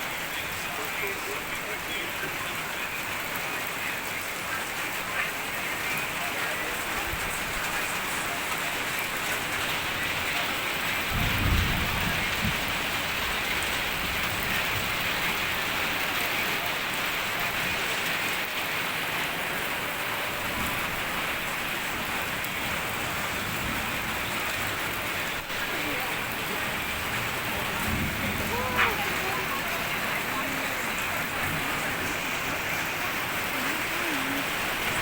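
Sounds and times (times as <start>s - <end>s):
steady rain falling: 0.0s - 35.0s
low rumble of thunder: 9.4s - 16.2s, 20.4s - 35.0s.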